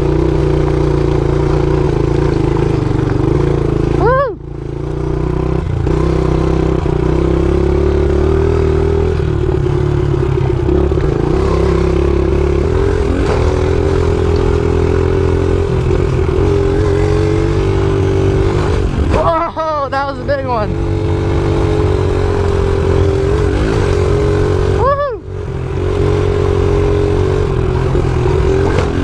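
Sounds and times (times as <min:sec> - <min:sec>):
dirt bike engine: 0:00.0 - 0:29.0
clatter: 0:27.7 - 0:29.0.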